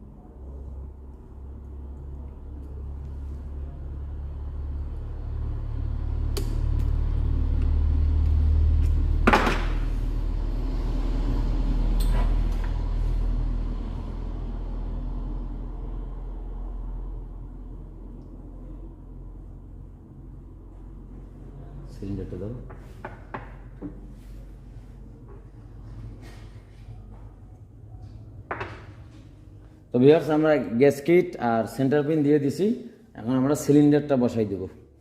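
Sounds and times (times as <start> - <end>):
passing vehicle rumble: 0.0 - 22.7.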